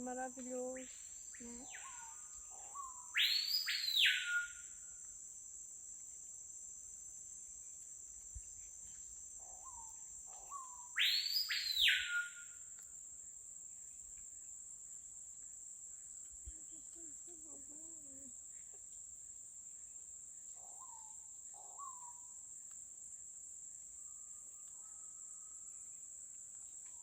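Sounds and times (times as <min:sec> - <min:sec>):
high-pitched insect drone: 0:00.0 - 0:14.5
bird loud whistled call: 0:01.6 - 0:04.8, 0:10.5 - 0:12.6.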